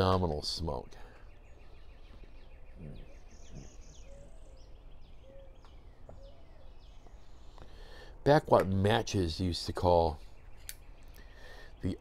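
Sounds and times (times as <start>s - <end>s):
bird trilling: 1.2s - 7.6s.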